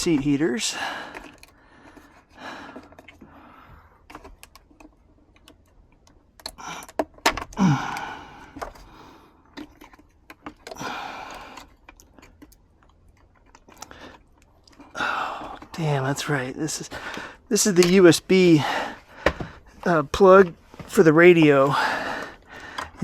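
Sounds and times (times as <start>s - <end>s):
rustling of trim pieces: 0.0s - 23.0s
plastic connectors clicking: 1.1s - 2.1s, 4.0s - 8.9s, 9.5s - 15.8s, 17.1s - 18.0s.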